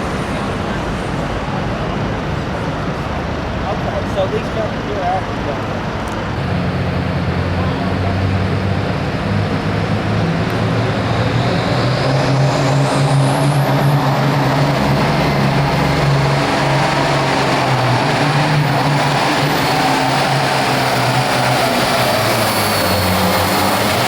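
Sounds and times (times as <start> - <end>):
tractor diesel engine running hard: 4.7 - 24.0
turbocharger whistle: 8.9 - 24.0.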